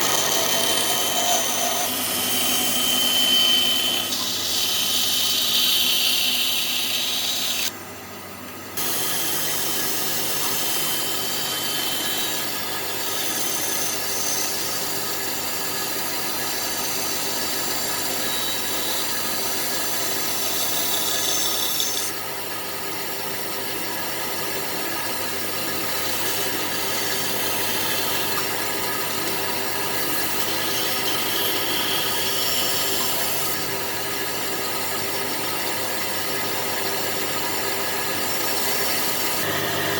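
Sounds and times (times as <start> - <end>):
power tool working wood: 0.0 - 7.7, 8.8 - 14.9, 26.0 - 33.8, 37.4 - 39.9.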